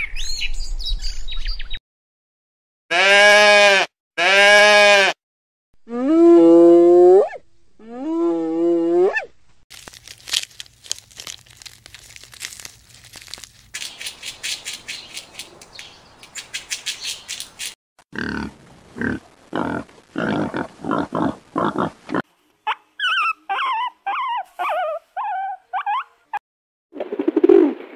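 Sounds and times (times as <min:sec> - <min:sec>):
squirrel chatter: 0:09.8 - 0:17.8
dry repeated clicks: 0:13.8 - 0:17.8.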